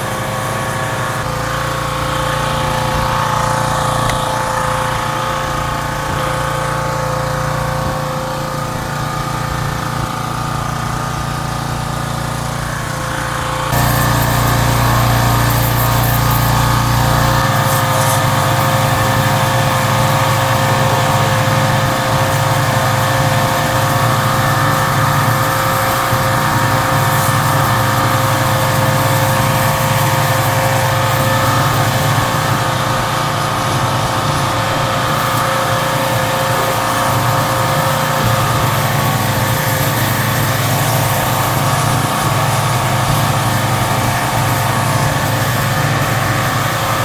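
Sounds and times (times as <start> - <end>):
pressure washer pump droning: 0.0 - 47.0
water spray hissing: 13.6 - 47.0.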